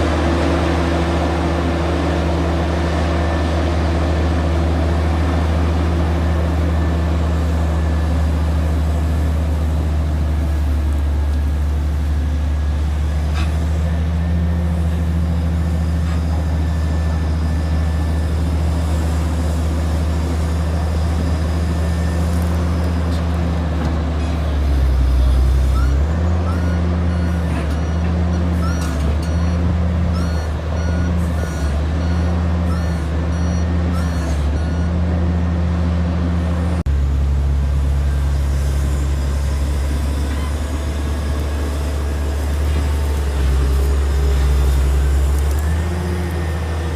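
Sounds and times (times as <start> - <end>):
heavy diesel engine droning: 0.0 - 46.9
reversing alarm beeping: 14.2 - 23.1, 25.7 - 35.0.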